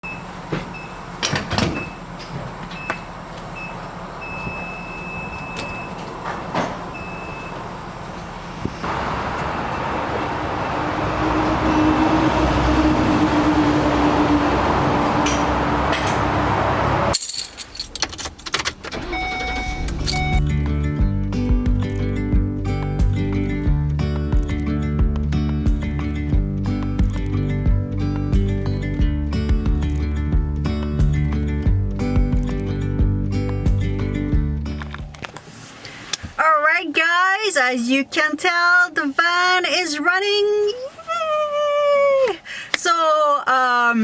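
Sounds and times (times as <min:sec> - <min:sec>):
engine starting and running: 0:00.2 - 0:17.2, 0:17.9 - 0:35.4
keys jangling: 0:17.1 - 0:18.7
repeated warning chime: 0:19.0 - 0:20.6.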